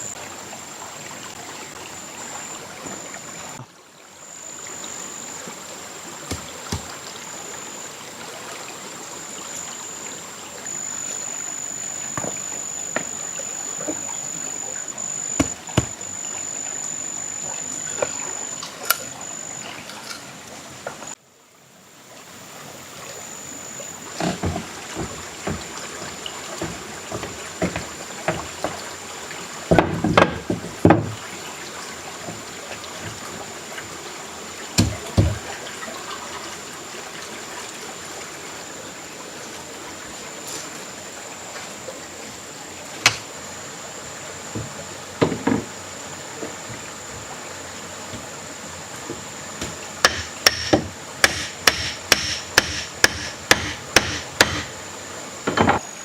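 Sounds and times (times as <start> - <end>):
thin high whine: 0.0 - 3.6, 4.2 - 21.2, 22.5 - 28.4
steady hiss: 0.0 - 56.0
knocks and thuds: 15.3 - 16.0.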